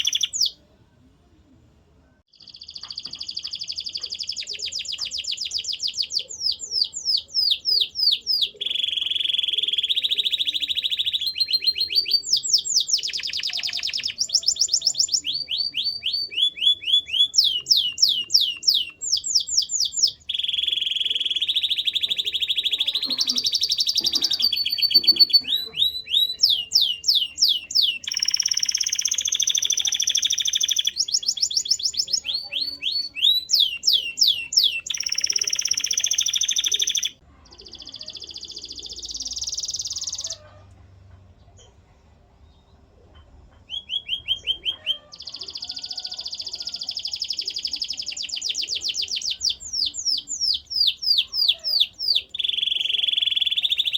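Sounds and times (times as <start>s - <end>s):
canary singing: 0.0s - 0.6s, 2.3s - 40.6s, 43.3s - 53.9s
canary rolling trills: 2.4s - 40.7s.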